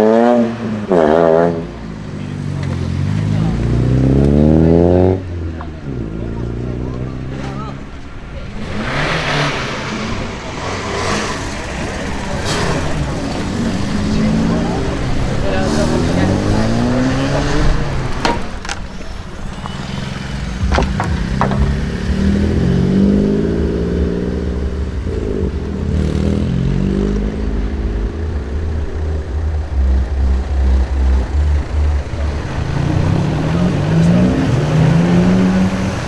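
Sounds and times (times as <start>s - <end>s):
car engines revving: 0.0s - 36.0s
sharp bangs: 19.8s - 34.2s.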